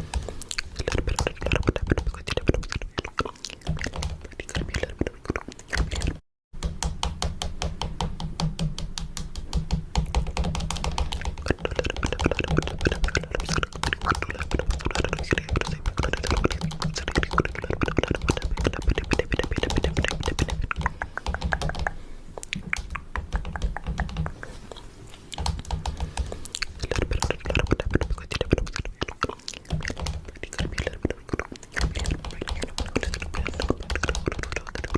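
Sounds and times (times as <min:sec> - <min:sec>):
fingernails tapping on plastic: 0:06.6 - 0:11.5.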